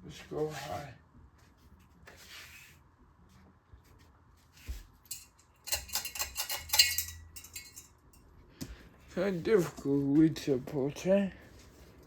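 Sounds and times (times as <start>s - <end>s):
light metallic clinking and rattling: 5.0s - 8.4s.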